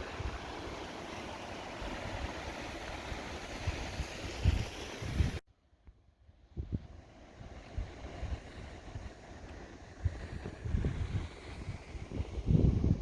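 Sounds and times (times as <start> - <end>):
hiss of wind and sea: 0.0 - 5.4, 6.2 - 13.0
wind buffeting microphone: 0.0 - 5.4, 6.5 - 13.0.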